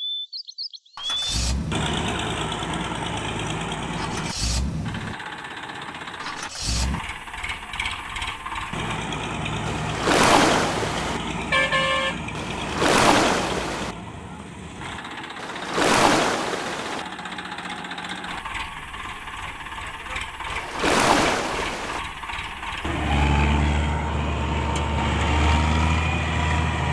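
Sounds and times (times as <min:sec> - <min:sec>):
heavy vehicle engine running: 0:01.2 - 0:26.9
short horn honk: 0:11.5 - 0:12.2.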